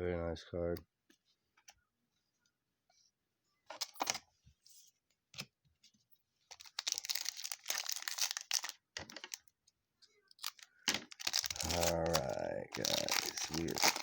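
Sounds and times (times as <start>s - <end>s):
wrapper crinkling and tearing: 6.5s - 9.4s, 10.3s - 14.0s
plastic packaging clicks and rustles: 6.5s - 9.6s, 10.3s - 14.0s.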